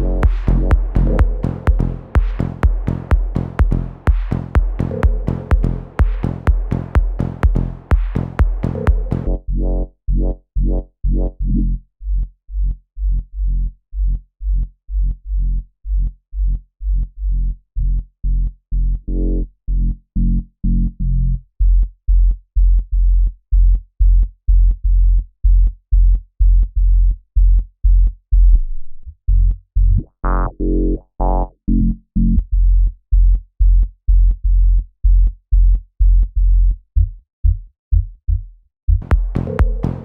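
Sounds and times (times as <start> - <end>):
electronic beat with hi-hats: 0.0 - 9.3, 39.0 - 40.0
looped synth bass: 0.0 - 11.9, 19.0 - 21.3, 29.8 - 32.5, 39.0 - 40.0.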